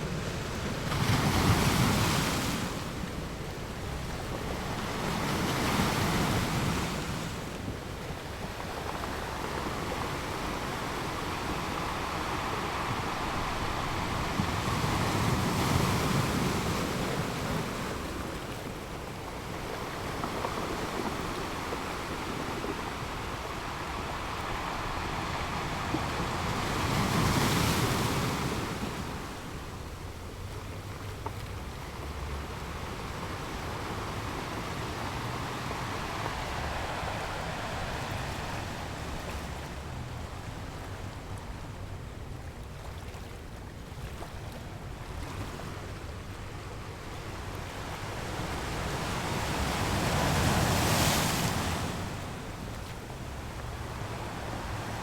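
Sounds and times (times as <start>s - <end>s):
waves washing onto sandy beach: 0.0s - 55.0s
waves breaking loudly: 33.0s - 41.0s.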